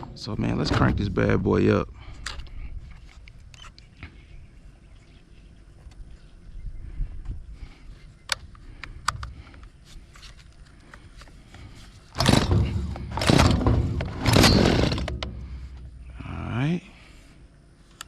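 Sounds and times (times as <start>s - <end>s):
recoil starter cord pulls: 12.2s - 15.9s
chainsaw engine firing: 12.2s - 16.1s.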